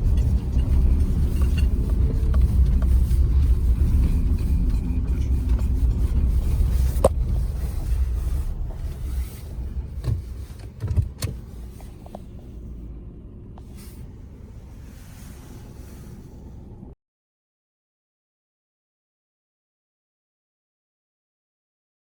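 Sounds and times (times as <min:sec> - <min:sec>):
low car-like rumble: 0:00.0 - 0:17.0.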